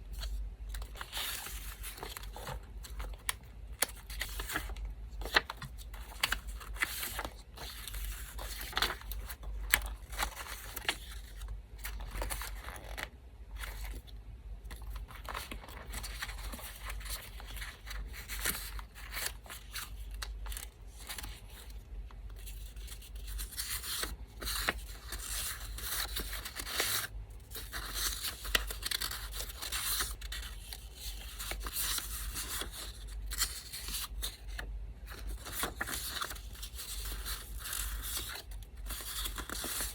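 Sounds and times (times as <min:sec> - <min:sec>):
electric fan hum: 0:00.0 - 0:39.9
paper tearing and rustling: 0:00.2 - 0:14.0, 0:22.4 - 0:39.9.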